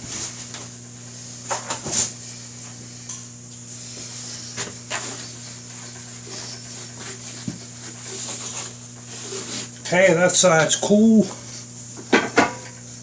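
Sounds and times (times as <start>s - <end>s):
steady low hum: 0.0s - 13.0s
rubbing and handling noises: 3.8s - 9.8s.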